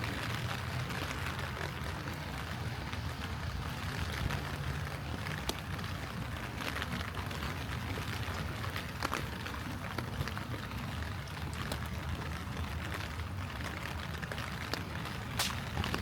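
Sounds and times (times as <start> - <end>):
light rain falling: 0.0 - 16.0
raindrops ticking close by: 0.0 - 16.0.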